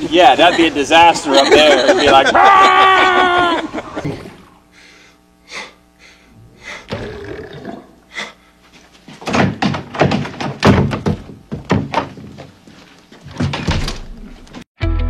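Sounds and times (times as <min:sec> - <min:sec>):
thuds and knocks: 0:09.1 - 0:12.6, 0:13.2 - 0:14.1.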